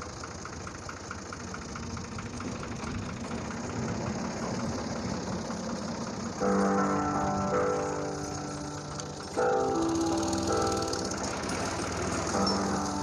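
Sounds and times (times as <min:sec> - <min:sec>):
engine idling: 0:00.0 - 0:13.0
music: 0:06.4 - 0:13.0.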